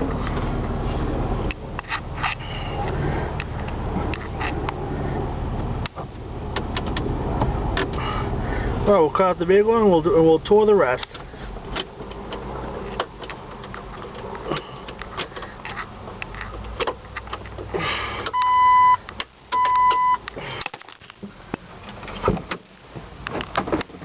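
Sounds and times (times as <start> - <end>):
handling clicks and knocks: 11.0 - 18.4
electronic warning beeps: 18.3 - 19.0, 19.6 - 20.2.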